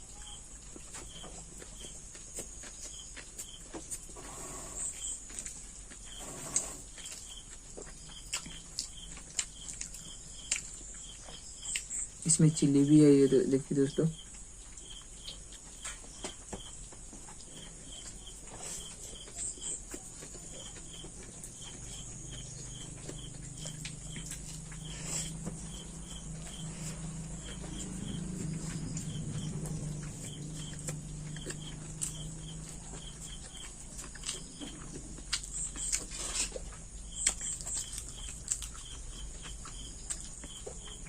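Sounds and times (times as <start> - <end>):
wet eating clicks and smacks: 5.3 - 12.3, 14.2 - 41.0
low hum: 19.8 - 36.1.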